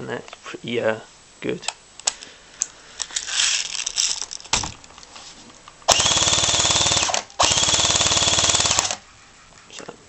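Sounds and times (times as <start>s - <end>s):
clicks and rustles: 2.0s - 5.7s
electric airsoft gun firing full-auto: 5.9s - 9.0s.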